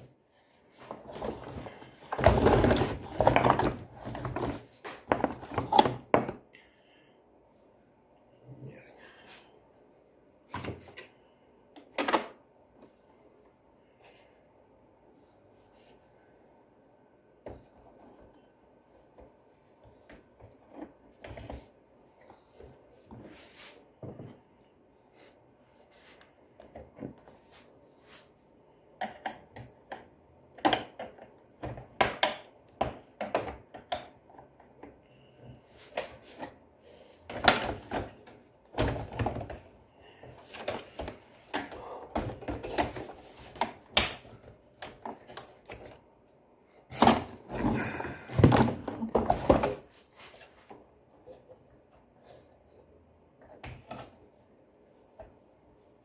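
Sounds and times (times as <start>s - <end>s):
vacuum cleaner parts being handled: 0.0s - 6.5s, 17.4s - 24.5s, 29.0s - 52.8s.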